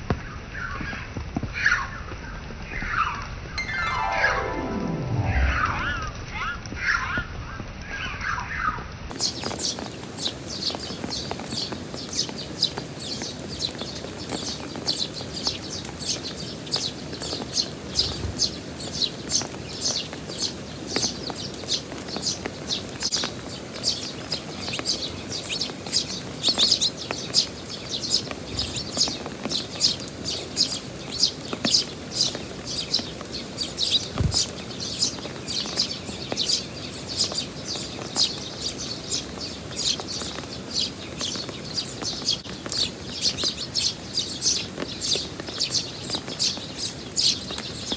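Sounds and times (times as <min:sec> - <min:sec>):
music: 0:03.6 - 0:06.3
sparrows chirping: 0:09.2 - 0:47.9.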